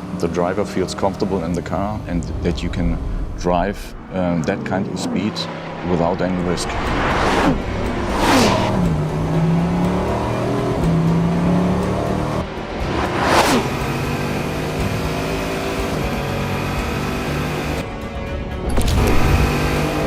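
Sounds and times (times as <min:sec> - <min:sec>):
music: 0:00.0 - 0:20.0
car sweeping past at high speed: 0:02.5 - 0:10.4.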